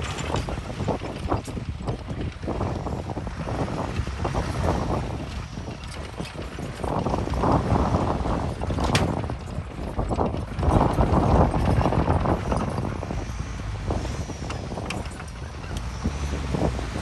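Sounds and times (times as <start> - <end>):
diesel machinery rumbling and clattering: 0.0 - 17.0.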